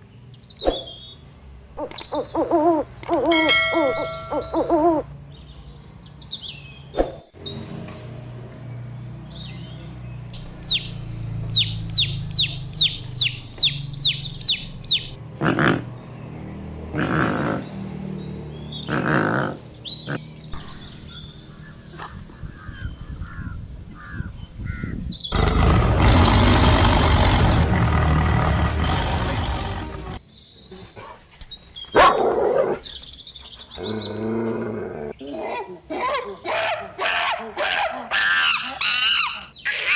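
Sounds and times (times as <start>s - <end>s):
bird chirping: 0.0s - 16.7s, 17.6s - 28.0s
loud rushing noise: 25.4s - 30.2s.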